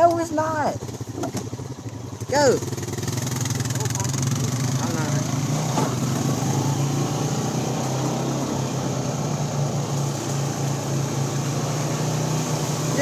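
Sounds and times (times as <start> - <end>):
vehicle engine idling: 0.0 - 6.2.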